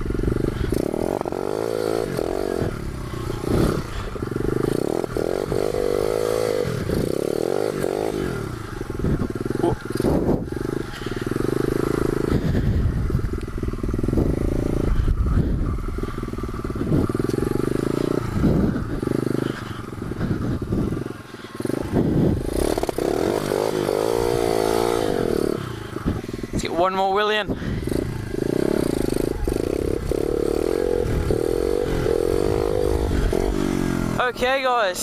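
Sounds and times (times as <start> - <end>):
pit bike engine revving: 0.0 - 35.0.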